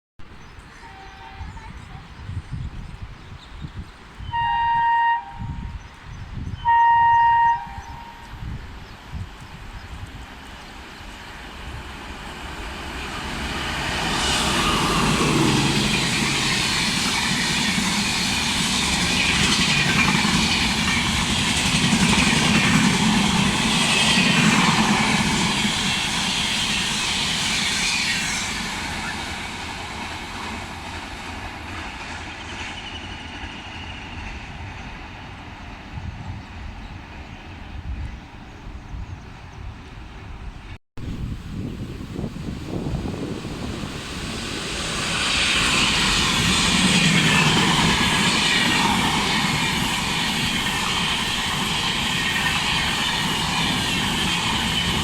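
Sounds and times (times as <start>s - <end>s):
train wheels on rails: 8.2s - 38.3s, 42.2s - 55.0s.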